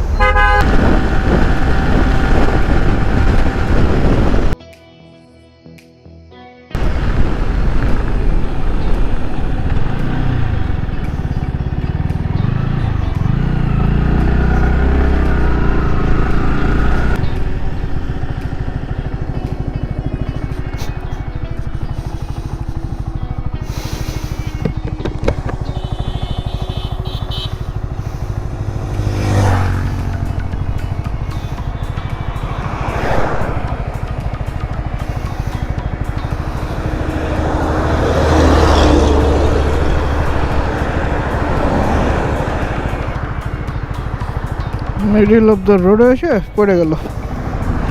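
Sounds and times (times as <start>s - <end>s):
motorcycle engine accelerating: 0.0s - 4.6s, 6.8s - 47.9s
road and wind noise: 0.0s - 4.6s, 6.7s - 47.9s
large vehicle passing: 6.8s - 47.9s.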